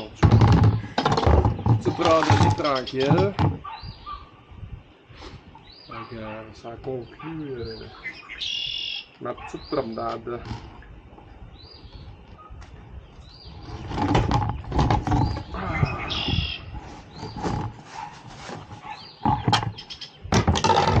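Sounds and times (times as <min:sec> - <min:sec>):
rustling and knocking: 0:00.0 - 0:03.7, 0:13.6 - 0:15.6, 0:16.3 - 0:21.0
bird chirping: 0:00.0 - 0:04.5, 0:05.5 - 0:18.1, 0:18.7 - 0:20.4.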